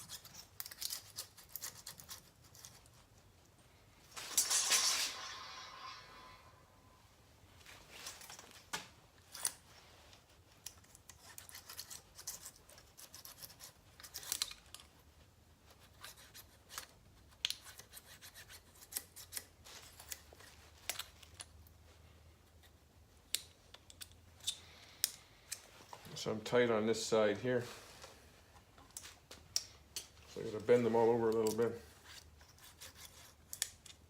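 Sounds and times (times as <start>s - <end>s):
metal blades scraping: 4.1s - 7.1s.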